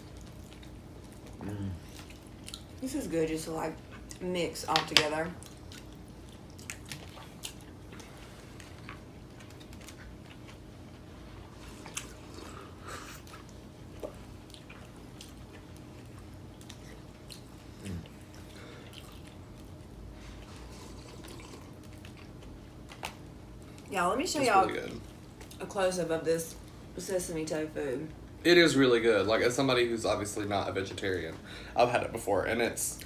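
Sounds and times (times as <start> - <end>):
people chewing food: 0.0 - 2.9, 3.7 - 4.2, 5.3 - 25.6
low room hum: 0.0 - 33.0.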